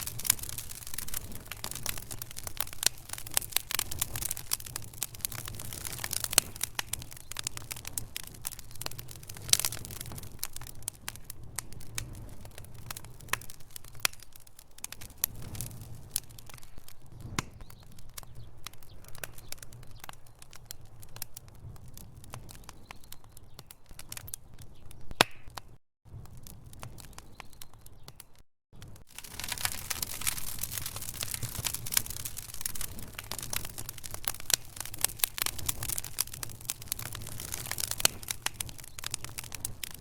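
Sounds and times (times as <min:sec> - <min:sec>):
wood fire crackling and popping: 0:00.0 - 0:40.0
soft hiss of fire: 0:28.8 - 0:40.0.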